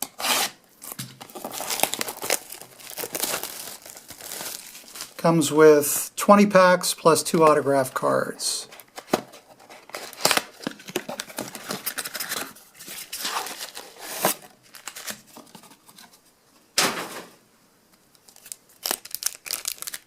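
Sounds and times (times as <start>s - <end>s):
packaging tearing: 0.1s - 5.2s, 8.8s - 15.3s, 18.2s - 20.0s
wrapping crinkling: 0.8s - 5.3s, 8.7s - 15.7s, 18.2s - 20.0s.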